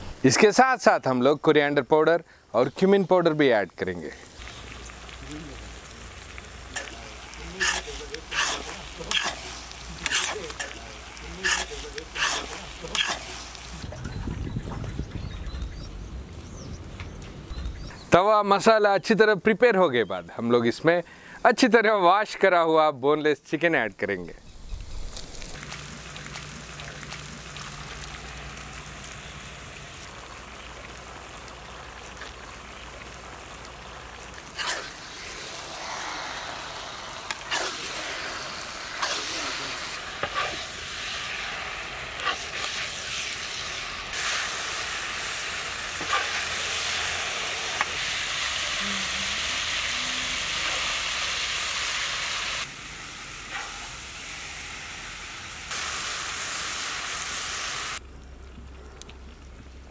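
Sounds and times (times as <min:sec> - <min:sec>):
chicken sizzling on a pan: 0:04.2 - 0:13.8, 0:25.5 - 0:58.0
spatula scraping a pan: 0:07.6 - 0:10.8, 0:11.4 - 0:13.4, 0:40.2 - 0:40.7.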